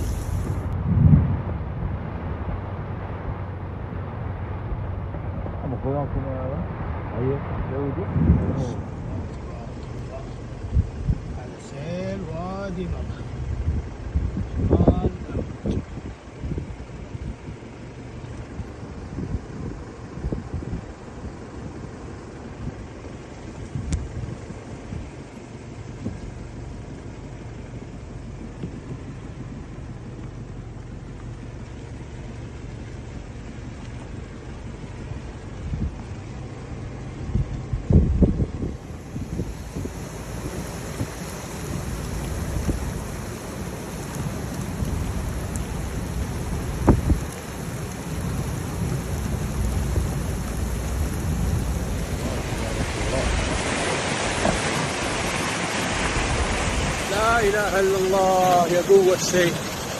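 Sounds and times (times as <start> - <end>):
heavy rain: 0.0 - 15.6, 38.6 - 59.9
car driving rumble: 0.0 - 59.9.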